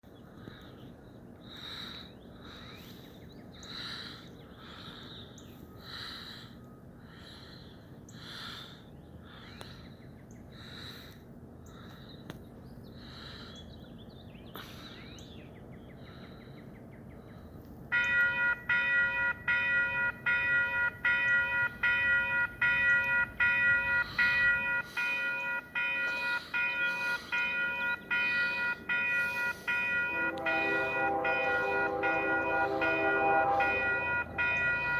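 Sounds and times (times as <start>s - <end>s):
bird calling: 12.9s - 34.9s
railroad crossing bell ringing: 17.9s - 34.9s.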